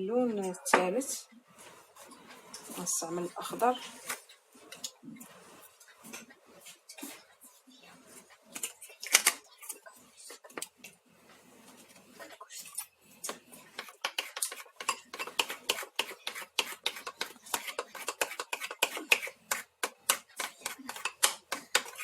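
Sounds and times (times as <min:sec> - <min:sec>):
spoon scraping a mixing bowl: 0:12.5 - 0:22.0.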